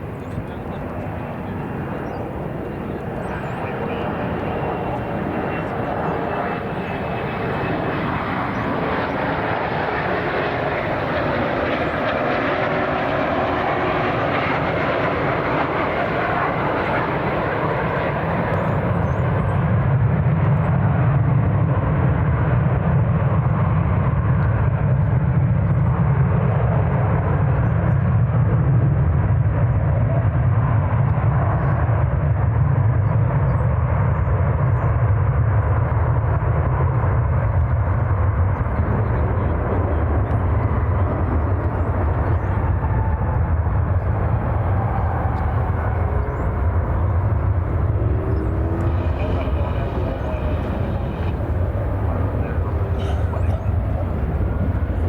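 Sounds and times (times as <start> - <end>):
jet engines rushing: 0.0 - 22.2, 35.1 - 55.0.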